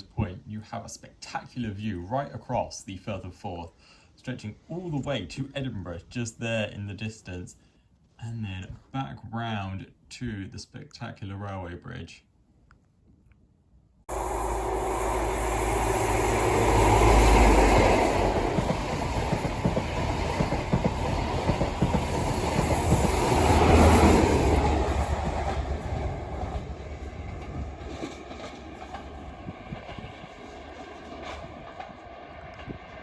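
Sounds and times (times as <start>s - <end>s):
diesel train rumble: 14.1s - 33.0s
wheels clattering over rails: 15.6s - 30.0s.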